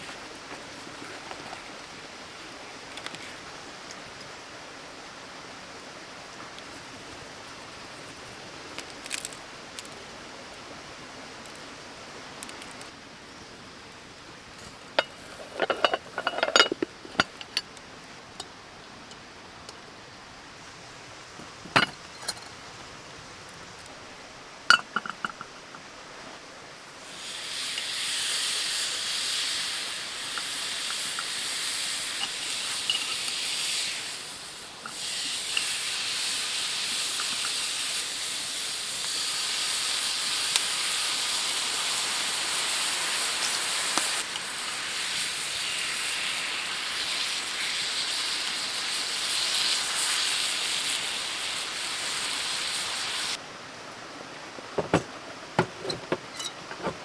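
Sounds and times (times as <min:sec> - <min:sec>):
light knocks and clinks: 0:15.0 - 0:17.7, 0:54.8 - 0:57.0
food sizzling in hot pan: 0:26.9 - 0:53.4.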